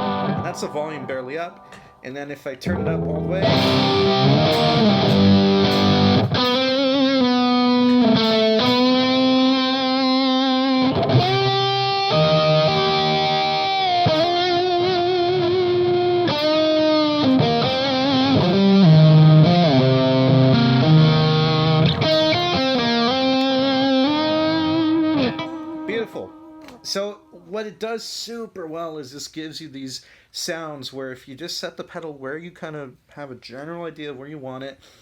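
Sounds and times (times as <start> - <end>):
distorted electric guitar: 0.0 - 1.9, 2.6 - 26.9.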